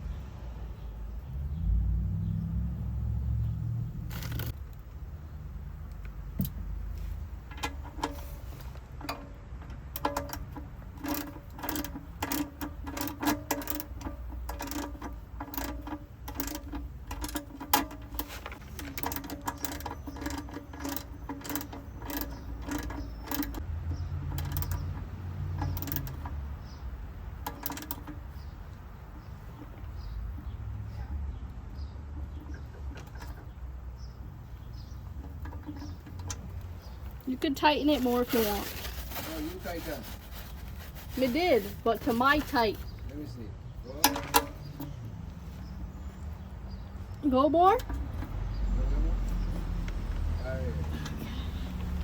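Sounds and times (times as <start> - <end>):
socket ratchet clicking: 9.0 - 28.5.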